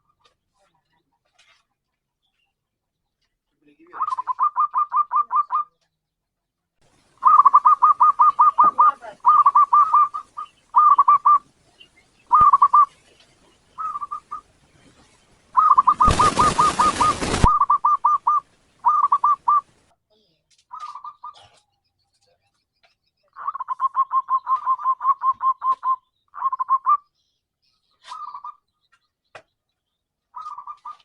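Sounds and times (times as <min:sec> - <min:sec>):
dove cooing: 0:03.9 - 0:05.7, 0:07.0 - 0:19.8, 0:20.7 - 0:21.6, 0:23.3 - 0:27.0, 0:28.0 - 0:28.6, 0:30.4 - 0:31.0
harsh hissing noise: 0:09.0 - 0:18.8.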